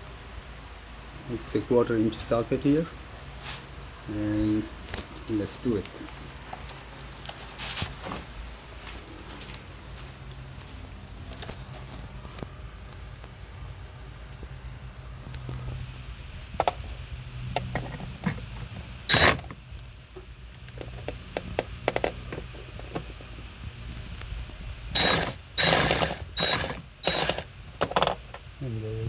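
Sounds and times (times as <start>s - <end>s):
impact gun ratcheting rattle: 19.1s - 19.6s, 25.0s - 28.2s.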